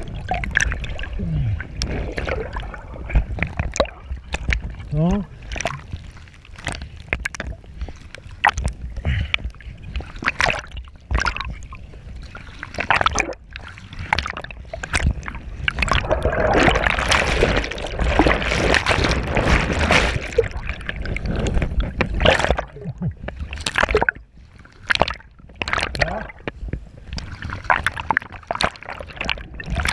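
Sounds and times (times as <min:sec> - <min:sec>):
water splashing and sloshing: 0:00.0 - 0:29.9
low rumble: 0:15.3 - 0:23.3.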